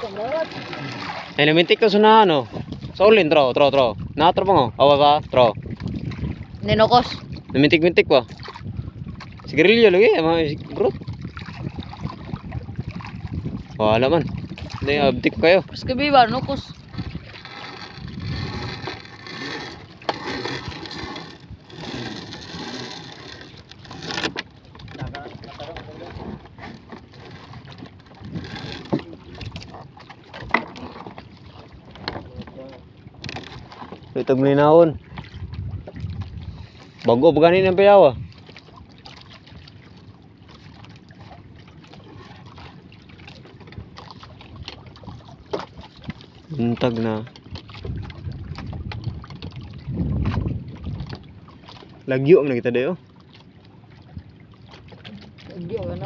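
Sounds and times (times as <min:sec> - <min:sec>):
small splashes: 0:00.0 - 0:03.0, 0:10.6 - 0:13.3, 0:38.4 - 0:56.0
water sloshing against hull: 0:00.0 - 0:56.0
wind: 0:00.0 - 0:56.0.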